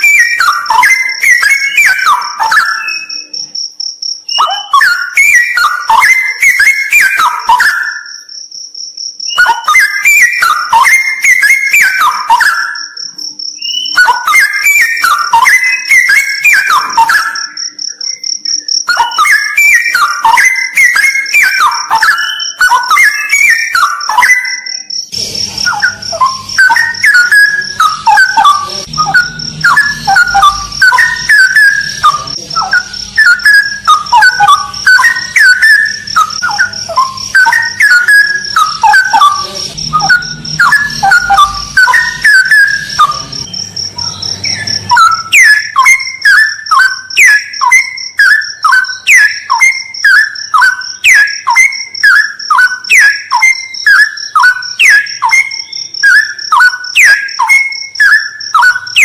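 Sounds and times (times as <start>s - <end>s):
bulbul singing: 0.0s - 59.0s
steady high-pitched whine: 24.8s - 51.0s.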